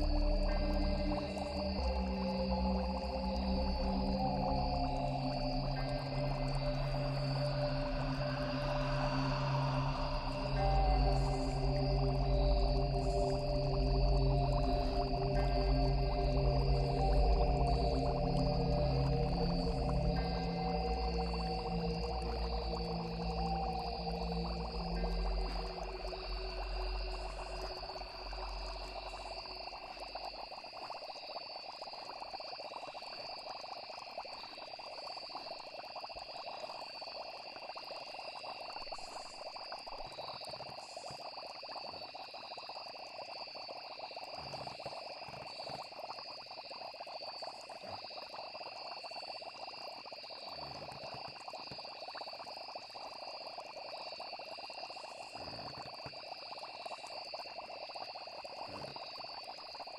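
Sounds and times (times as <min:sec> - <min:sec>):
low musical drone: 0:00.0 - 0:29.5
crickets chirping: 0:00.0 - 0:59.9
frogs croaking: 0:00.0 - 0:59.9.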